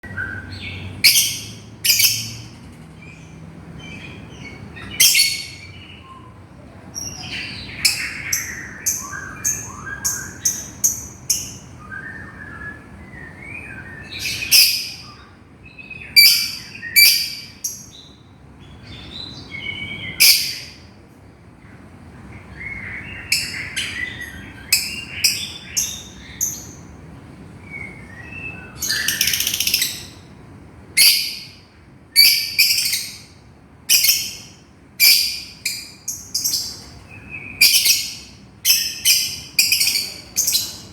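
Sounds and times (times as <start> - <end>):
lovebird calling: 0.1 - 3.2, 7.0 - 20.8, 27.6 - 30.3, 31.0 - 31.6, 32.2 - 40.9
soft bird chattering: 7.0 - 11.8, 28.4 - 30.3.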